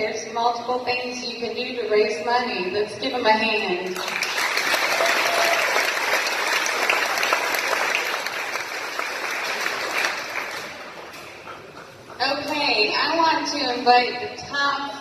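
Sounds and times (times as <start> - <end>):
crowd applauding: 4.0 - 12.2.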